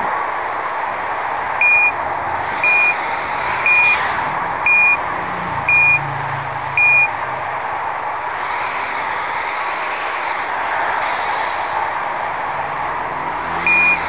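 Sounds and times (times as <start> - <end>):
engine and road noise: 0.0 - 14.0
truck reversing beeper: 1.6 - 2.0, 2.6 - 7.2, 13.6 - 14.0.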